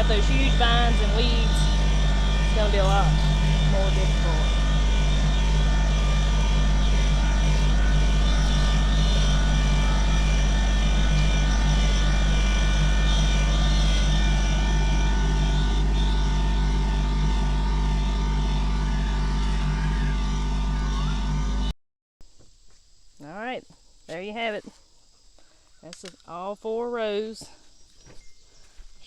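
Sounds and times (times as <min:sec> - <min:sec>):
tractor diesel engine running: 0:00.0 - 0:21.7.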